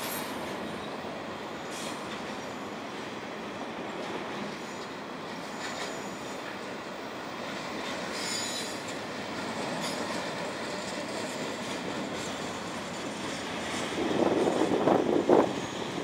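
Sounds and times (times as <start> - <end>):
train wheels rumbling on rail: 0.0 - 16.0
wheel squeal: 5.6 - 6.5, 8.1 - 12.6.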